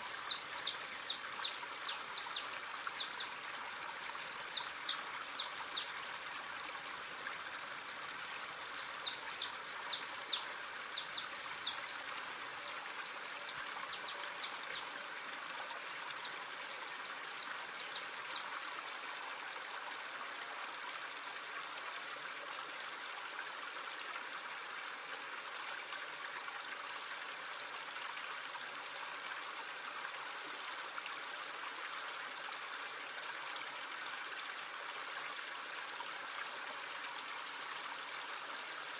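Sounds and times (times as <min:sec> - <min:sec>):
bird chirping: 0:00.0 - 0:03.3, 0:04.0 - 0:06.3, 0:07.8 - 0:12.2
stream rushing and trickling: 0:00.0 - 0:38.9.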